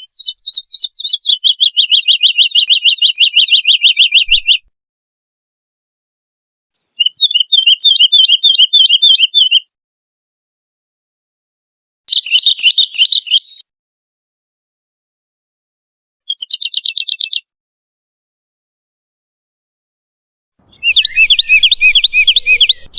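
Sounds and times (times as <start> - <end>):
woodlark singing: 0.0 - 4.7, 6.8 - 9.7, 12.1 - 13.6, 16.3 - 17.5, 20.6 - 22.9.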